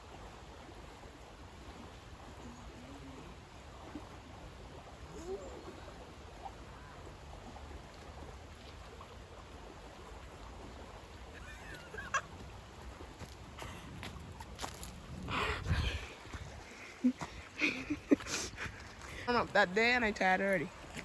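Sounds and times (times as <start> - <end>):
river water flowing: 0.0 - 21.0.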